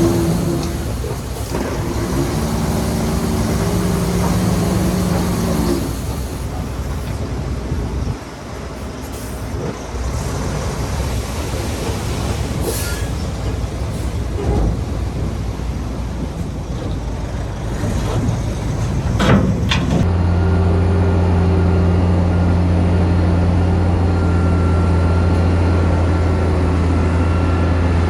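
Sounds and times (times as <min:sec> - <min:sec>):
rough rumble and clatter: 0:00.0 - 0:20.2
diesel machinery engine running: 0:00.0 - 0:28.0.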